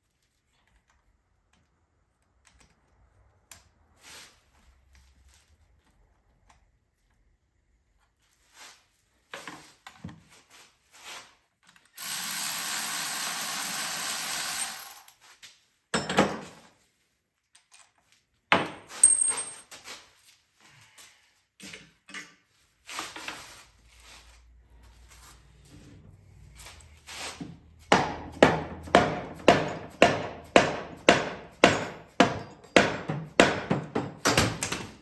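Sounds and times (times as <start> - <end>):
power tool running: 12.0 - 15.1
metal tools clinking: 18.9 - 19.7.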